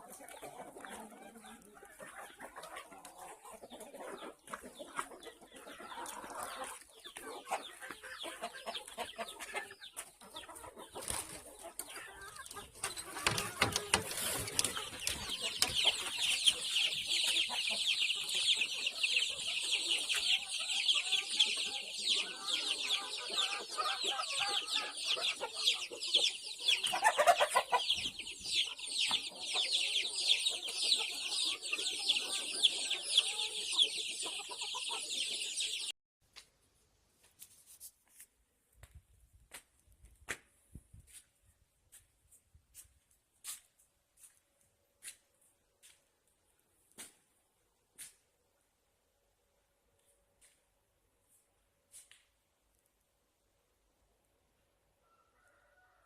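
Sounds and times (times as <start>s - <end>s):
chicks cheeping: 0.0s - 35.9s
chickens clucking: 0.0s - 36.0s.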